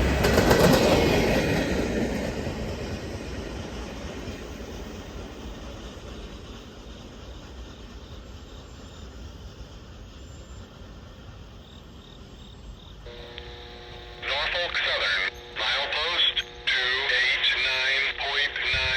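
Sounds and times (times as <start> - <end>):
passing train rumble: 0.0 - 18.9
insects chirping: 3.8 - 18.9
radio steady tones: 13.1 - 18.9.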